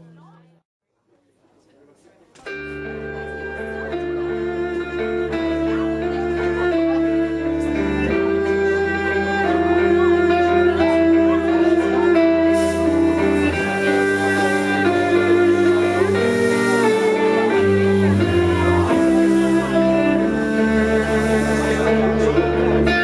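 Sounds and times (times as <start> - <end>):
instrumental trio playing: 2.5 - 23.0
high hiss: 12.5 - 22.3.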